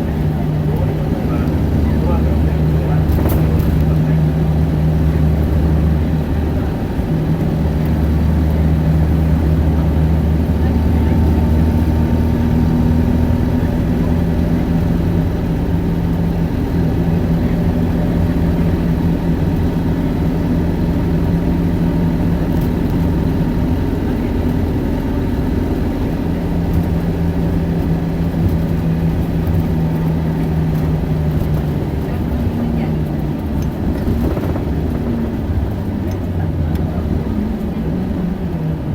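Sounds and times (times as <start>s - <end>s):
bus diesel engine rumbling: 0.0s - 38.9s.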